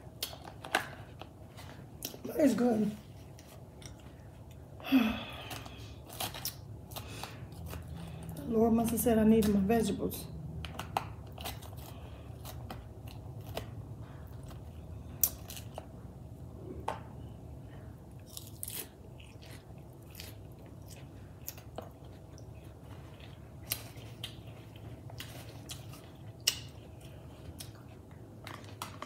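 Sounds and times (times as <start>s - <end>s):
low steady hum: 0.0s - 29.0s
person chewing crisp lettuce: 3.2s - 8.4s, 10.7s - 16.6s, 17.8s - 29.0s.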